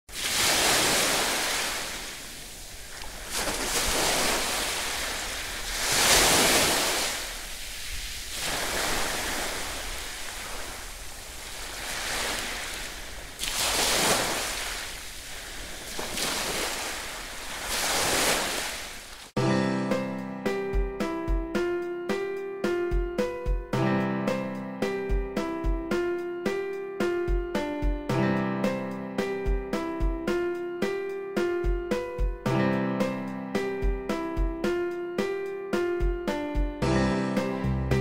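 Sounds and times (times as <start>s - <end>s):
sea waves washing in: 0.1s - 19.4s.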